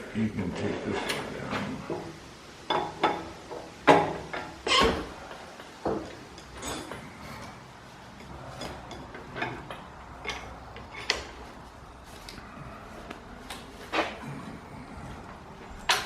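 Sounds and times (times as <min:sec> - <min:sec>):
tools knocking and clicking: 0:02.7 - 0:07.5, 0:08.2 - 0:11.4.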